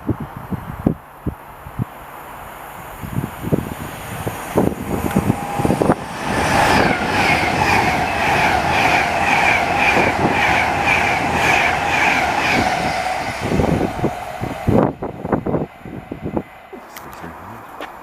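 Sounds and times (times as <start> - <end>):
train running on rails: 0.1 - 18.0
high-pitched wheel note: 4.2 - 10.9.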